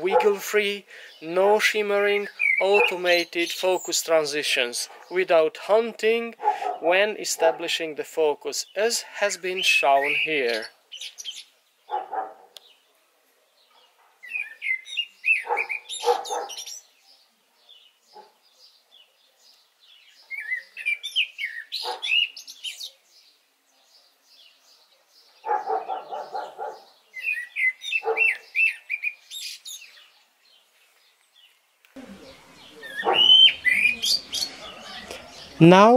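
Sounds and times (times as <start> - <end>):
dog barking: 0.0 - 0.4, 6.4 - 7.7, 11.9 - 12.6, 15.4 - 16.7, 18.1 - 19.2, 21.8 - 22.2, 25.4 - 27.0, 28.0 - 28.5, 33.0 - 33.6
birds chirping: 0.0 - 35.9.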